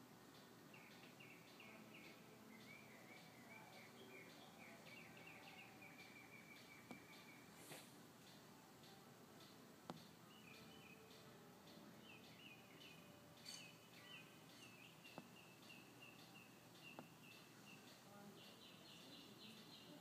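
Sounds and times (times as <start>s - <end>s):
faint bird chirping: 0.1s - 20.0s
soft clicks: 6.0s - 19.7s.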